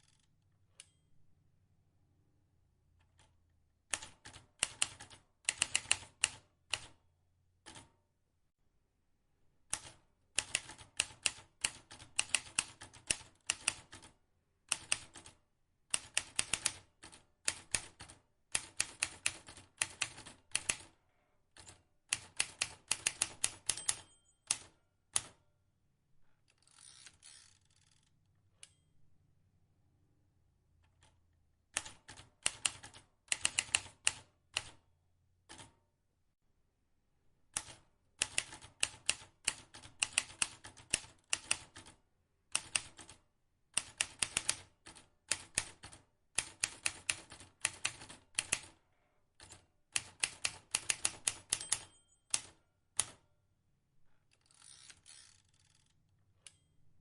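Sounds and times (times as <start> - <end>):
typewriter keys clacking: 21.6 - 25.3, 49.4 - 53.1.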